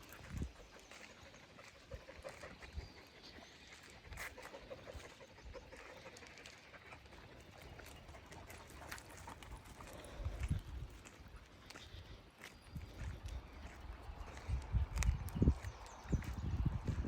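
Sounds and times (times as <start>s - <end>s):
dogs panting: 0.0s - 17.0s.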